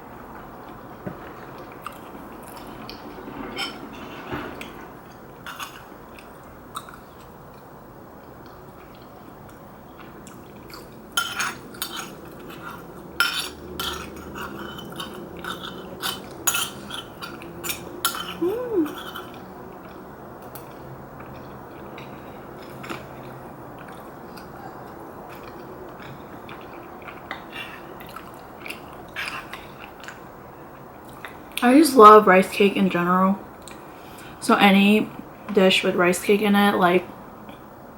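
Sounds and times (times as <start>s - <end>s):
utensils clinking against a bowl: 10.7s - 19.4s.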